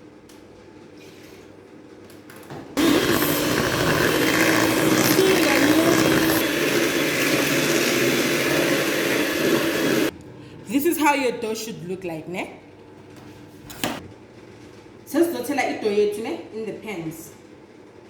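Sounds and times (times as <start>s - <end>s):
electric mixer beating batter: 2.8s - 10.1s.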